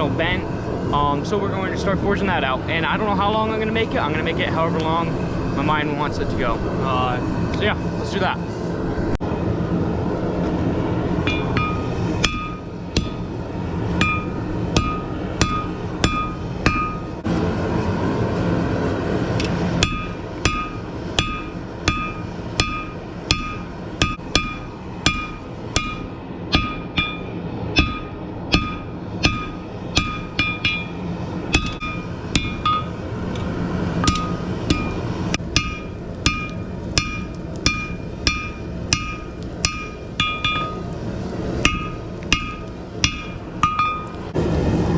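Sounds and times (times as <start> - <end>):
low rumble: 0.0 - 44.9
hammer striking hot metal: 11.2 - 17.3, 19.3 - 44.4.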